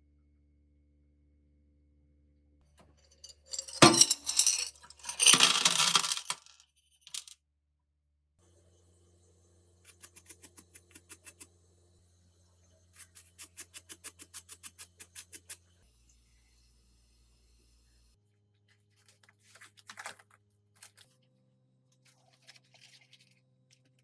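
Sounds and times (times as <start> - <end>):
small metal parts clattering: 3.1 - 7.4.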